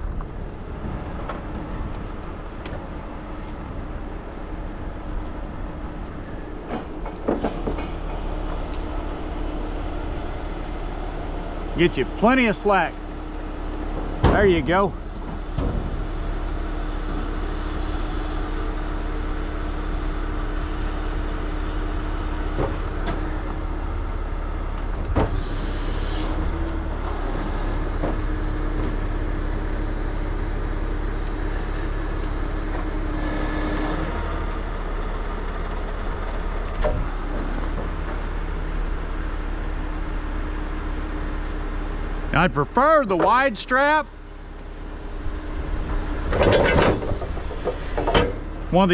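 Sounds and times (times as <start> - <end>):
truck diesel engine idling: 4.1 - 23.0.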